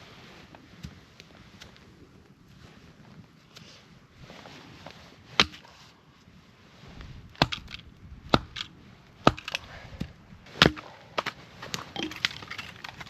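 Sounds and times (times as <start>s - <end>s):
axe strikes chopping wood: 5.4s - 5.6s, 9.2s - 9.6s, 10.6s - 13.0s
wood cracking: 10.6s - 13.0s.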